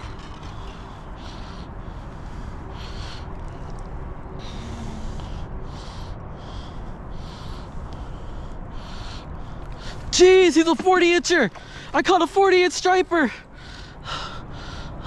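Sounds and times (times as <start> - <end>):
man breathing hard: 0.0 - 10.1, 11.5 - 12.0, 13.4 - 15.0
steady low rumble: 0.0 - 10.7.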